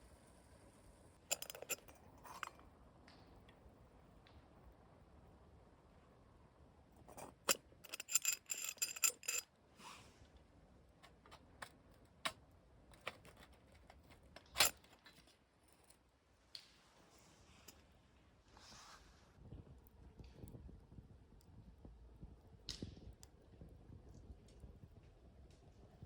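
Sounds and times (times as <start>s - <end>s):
metallic clinks: 1.3s - 2.5s, 7.1s - 9.4s.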